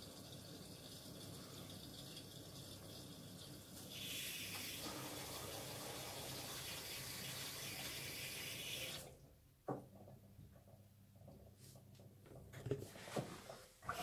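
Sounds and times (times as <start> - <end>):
washing machine low hum: 4.7 - 7.9.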